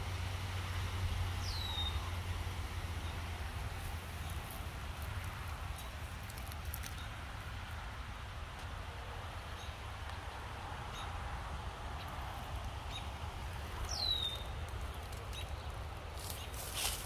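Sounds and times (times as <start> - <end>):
footsteps rustling through grass: 14.5 - 17.0.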